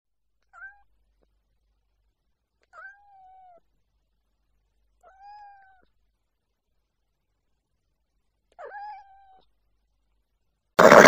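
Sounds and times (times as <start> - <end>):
cat meowing: 0.5 - 0.9, 2.7 - 3.6, 5.0 - 5.9, 8.5 - 9.5.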